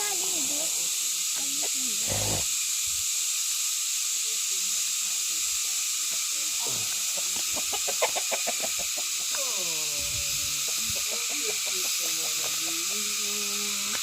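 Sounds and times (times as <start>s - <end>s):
high-pitched insect drone: 0.0s - 14.0s
chicken clucking: 7.1s - 9.3s.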